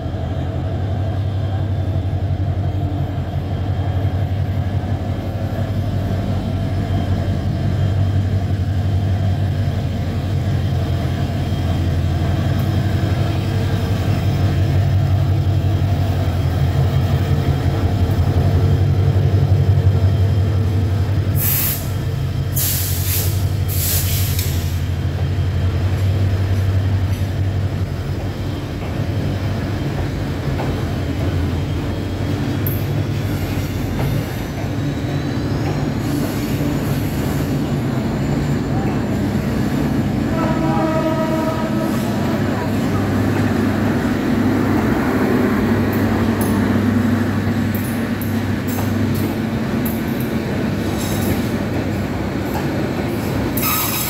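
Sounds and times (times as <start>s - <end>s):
diesel locomotive engine droning: 0.0s - 54.0s
air brake hisses: 21.4s - 22.0s, 22.6s - 24.8s.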